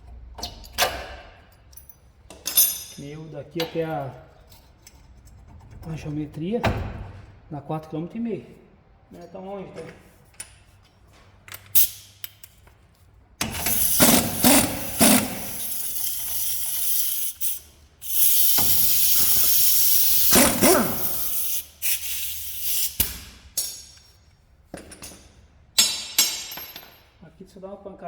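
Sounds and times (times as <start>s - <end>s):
loud hissing spray: 13.7s - 23.0s.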